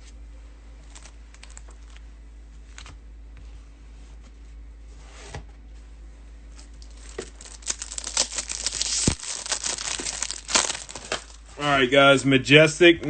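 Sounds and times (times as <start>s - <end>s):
plastic wrapping tearing and crinkling: 0.8s - 2.0s, 6.6s - 11.5s.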